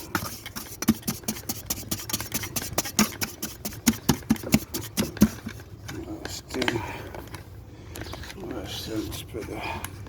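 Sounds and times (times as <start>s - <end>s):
hand tool scraping brick: 0.0s - 5.5s.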